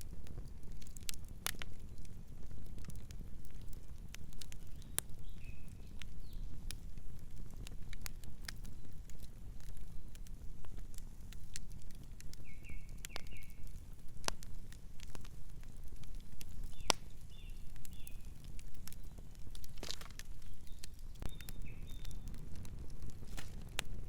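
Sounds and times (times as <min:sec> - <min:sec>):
wood fire crackling: 0:00.0 - 0:24.0
bird chirps: 0:20.4 - 0:22.2.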